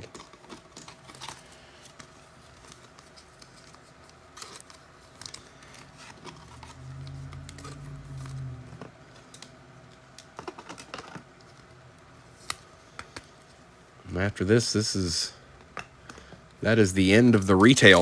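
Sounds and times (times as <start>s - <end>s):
trading cards clicking and rustling: 0.0s - 11.7s
low hum: 4.4s - 10.2s.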